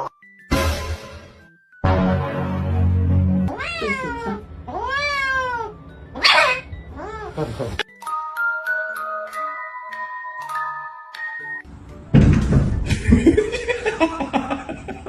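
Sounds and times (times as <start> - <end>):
cat yowling meows: 3.5 - 7.4
cat hissing: 6.2 - 7.8.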